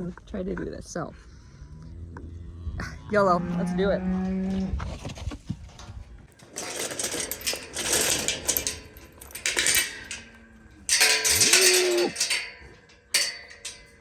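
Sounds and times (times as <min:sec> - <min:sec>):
calf mooing: 0:02.1 - 0:04.7
metal gates rattling and clanking: 0:05.8 - 0:14.0.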